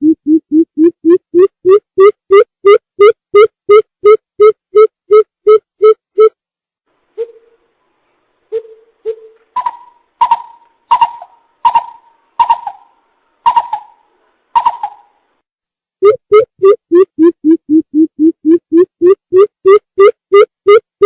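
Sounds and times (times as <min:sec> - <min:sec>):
higher-pitched bird notes: 0:08.5 - 0:15.2.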